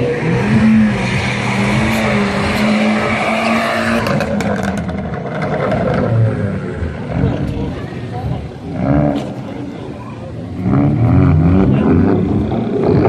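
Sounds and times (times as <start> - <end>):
car engine revving hard: 0.0 - 7.8, 10.5 - 13.0
exhaust pops and crackles: 4.0 - 6.2.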